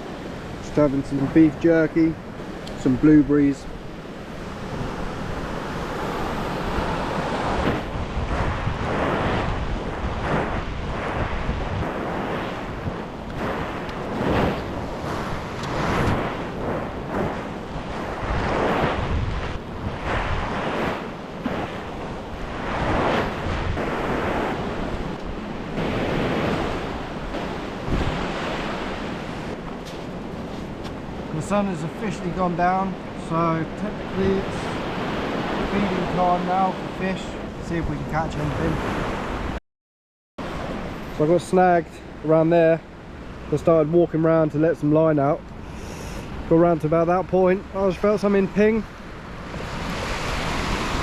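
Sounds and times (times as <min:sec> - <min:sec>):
waves washing onto shore: 0:00.0 - 0:39.6, 0:40.4 - 0:51.0
wind blowing across microphone: 0:00.0 - 0:39.6, 0:40.4 - 0:51.0.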